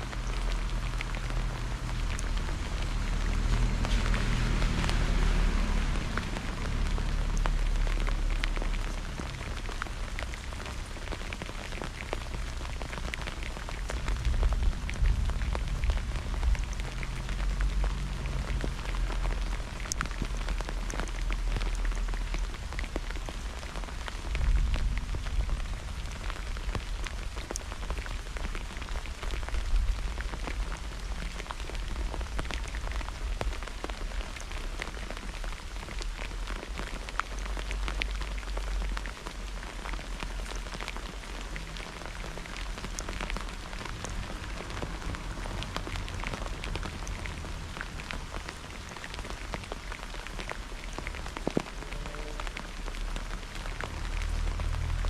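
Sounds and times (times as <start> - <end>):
raindrop hits close by: 0.0 - 55.0
steady rain falling: 0.0 - 55.0.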